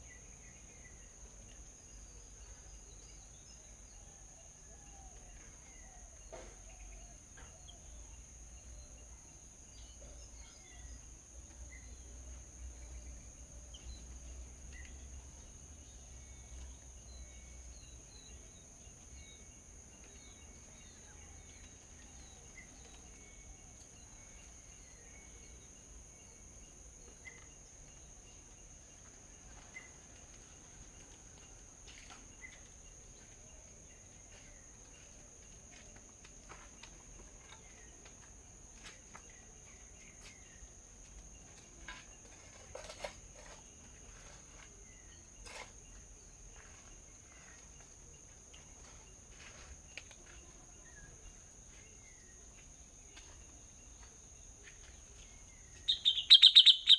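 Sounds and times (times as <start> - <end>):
insect drone: 50.8 - 56.9
bird chirping: 54.9 - 56.9.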